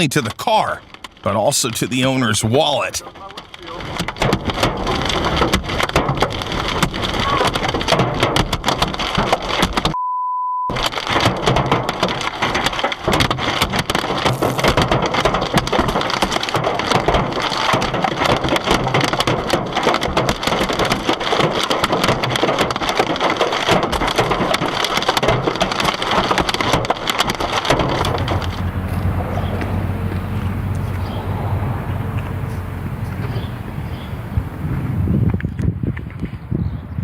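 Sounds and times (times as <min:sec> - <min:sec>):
hailstones pelting a car: 0:00.4 - 0:10.0, 0:10.7 - 0:35.3
single-tone bleep: 0:10.0 - 0:10.7.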